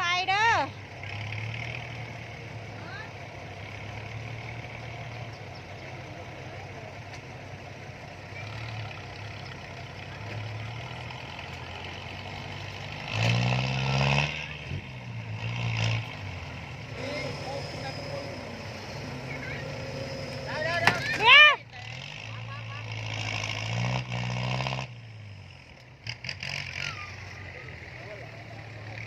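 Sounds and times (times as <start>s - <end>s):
heavy vehicle engine idling: 0.0s - 13.1s, 16.1s - 23.0s, 26.8s - 29.0s
engine revving: 0.0s - 29.0s.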